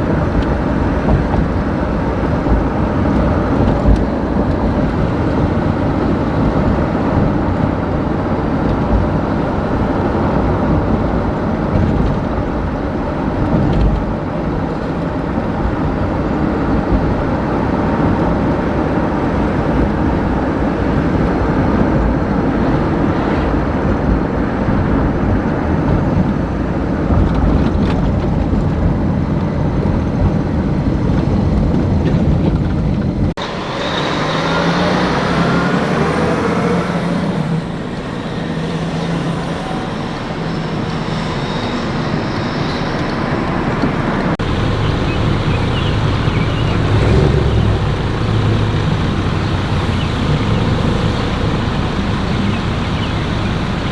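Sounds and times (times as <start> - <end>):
vehicle road and engine rumble: 0.0 - 53.9.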